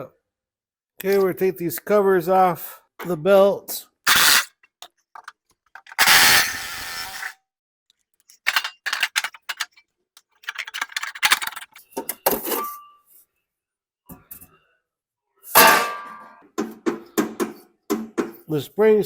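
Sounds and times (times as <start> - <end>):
hand tools clanking on metal: 4.1 - 4.5, 5.2 - 7.3, 8.4 - 9.8, 10.4 - 11.8
rapid clicking: 8.5 - 9.8, 10.4 - 11.8.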